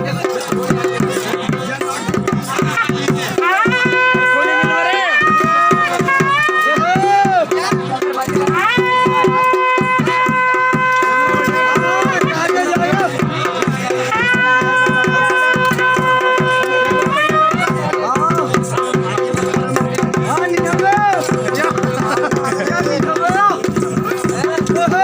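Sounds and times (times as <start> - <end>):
drums beating fast rhythm: 0.0 - 25.0
wind instrument holding long notes: 2.8 - 7.5, 8.4 - 13.0, 13.9 - 18.0.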